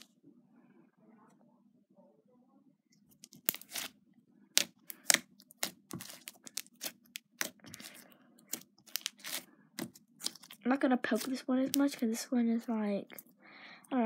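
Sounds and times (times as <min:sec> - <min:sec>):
slime crackling and popping: 0:03.2 - 0:03.9, 0:04.6 - 0:10.6.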